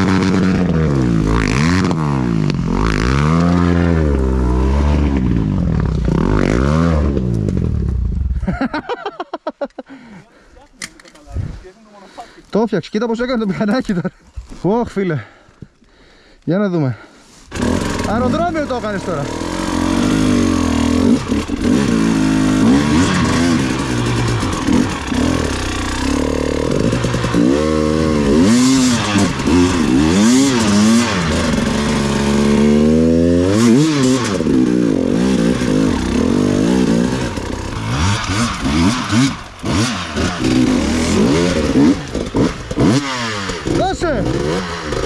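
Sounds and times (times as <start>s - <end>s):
motorcycle engine revving: 0.0s - 8.4s, 17.5s - 45.0s.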